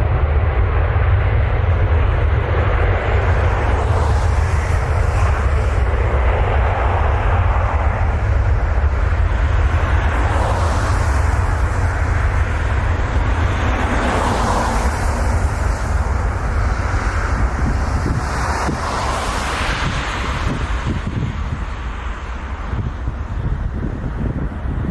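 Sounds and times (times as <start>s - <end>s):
jet airliner engines running: 0.0s - 24.9s.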